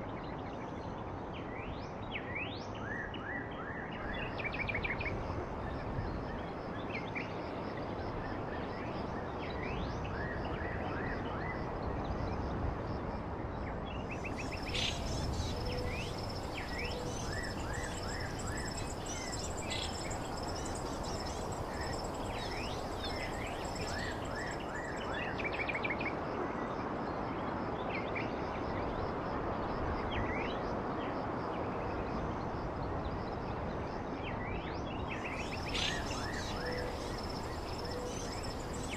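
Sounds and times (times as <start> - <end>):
steady noise haze: 14.1 - 25.6, 35.2 - 38.9
birds chirping: 14.4 - 25.0, 35.4 - 38.9.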